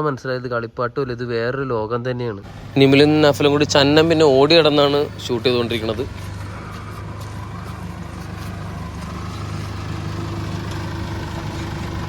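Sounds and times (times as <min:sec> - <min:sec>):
jeep engine idling: 0:02.4 - 0:12.0.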